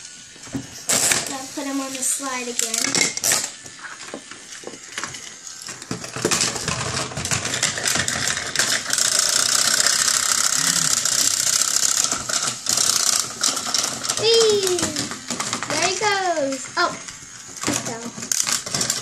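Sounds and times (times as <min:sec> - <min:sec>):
toy motor rattling and clattering: 0:00.0 - 0:19.0.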